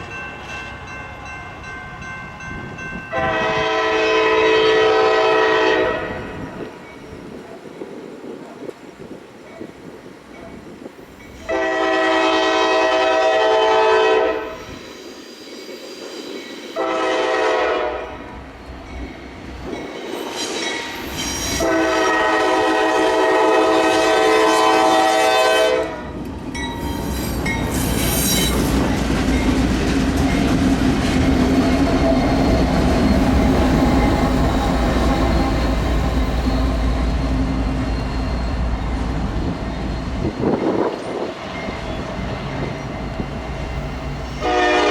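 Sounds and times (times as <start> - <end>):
locomotive air horn: 3.1 - 6.4, 11.4 - 14.7, 16.8 - 18.3, 21.6 - 26.1, 44.4 - 44.9
train wheels clattering on rails: 18.3 - 24.6, 26.1 - 44.8.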